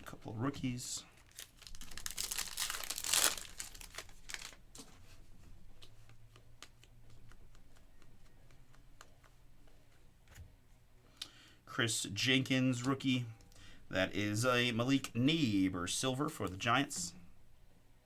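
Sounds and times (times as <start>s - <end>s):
foil wrapper tearing and crinkling: 1.2s - 4.6s.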